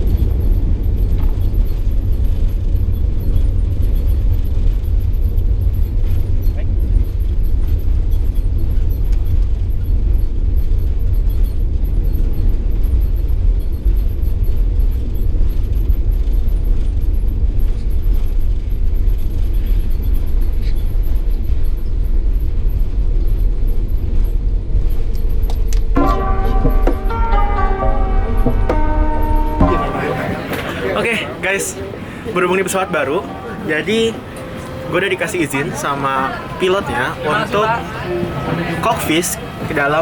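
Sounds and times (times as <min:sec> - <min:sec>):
airliner cabin engine rumble: 0:00.0 - 0:26.0
music: 0:26.0 - 0:30.8.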